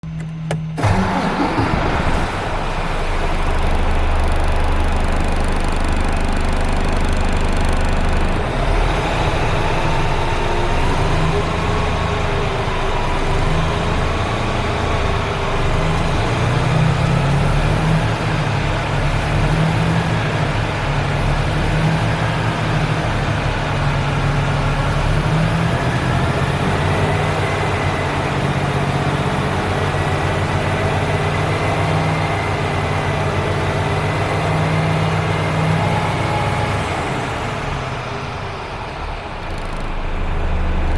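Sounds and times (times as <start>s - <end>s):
diesel engine idling: 0.8s - 19.3s, 36.0s - 40.9s.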